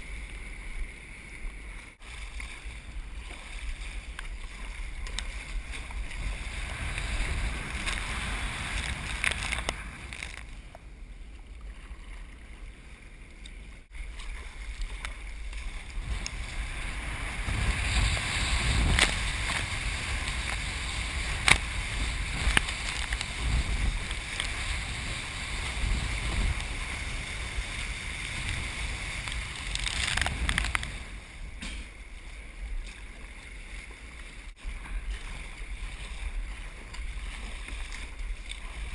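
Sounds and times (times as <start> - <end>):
wind buffeting microphone: 0.0 - 12.9, 13.9 - 38.9
breaking surf: 5.6 - 10.4, 15.6 - 31.7.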